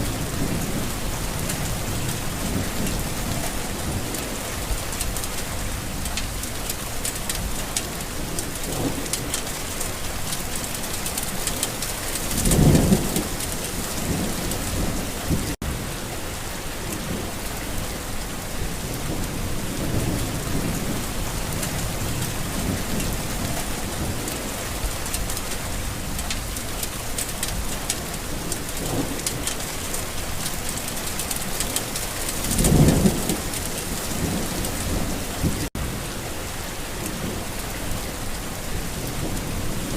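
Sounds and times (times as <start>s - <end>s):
heavy rain: 0.0s - 39.9s
thunder rumbling: 11.2s - 15.9s, 18.6s - 36.0s.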